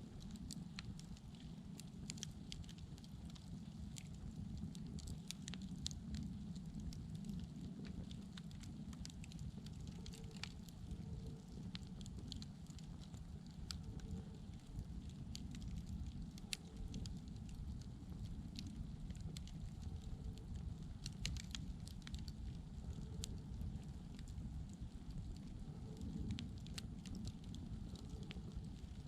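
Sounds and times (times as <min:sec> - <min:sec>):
fire crackling: 0:00.0 - 0:29.0.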